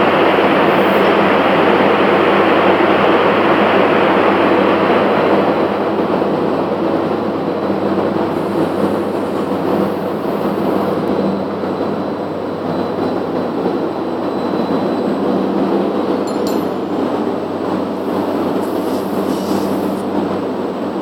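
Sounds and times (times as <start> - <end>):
machine clatter and hum: 0.0 - 21.0
metallic clink: 16.2 - 16.9.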